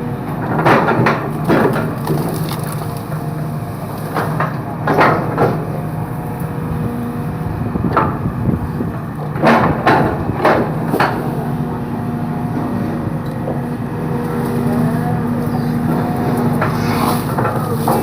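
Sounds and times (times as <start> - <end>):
excavator diesel engine running: 0.0 - 18.0
bamboo cracking and splintering: 1.4 - 4.3.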